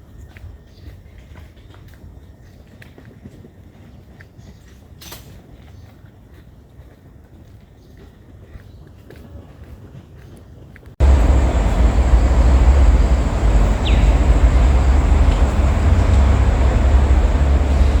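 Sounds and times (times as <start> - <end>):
wind buffeting microphone: 11.0 - 18.0.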